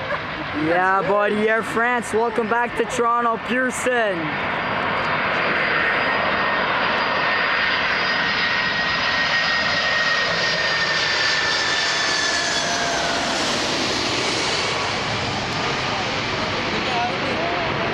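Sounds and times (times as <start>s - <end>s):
jet engines running: 0.0s - 17.9s
engine whine falling in pitch: 5.4s - 16.3s.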